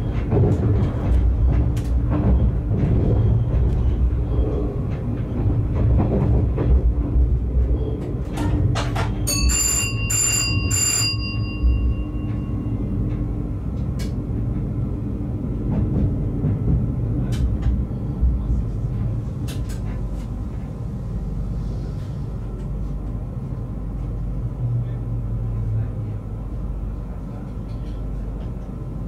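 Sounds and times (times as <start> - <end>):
train running on track: 0.0 - 29.0
bell ringing: 9.3 - 12.8.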